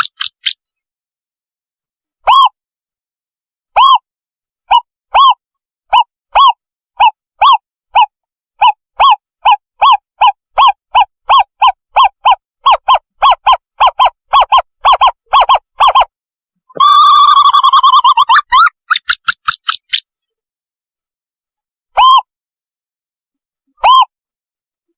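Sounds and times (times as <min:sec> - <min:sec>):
fast bubbling bird trill: 0:00.0 - 0:00.6, 0:16.8 - 0:20.1.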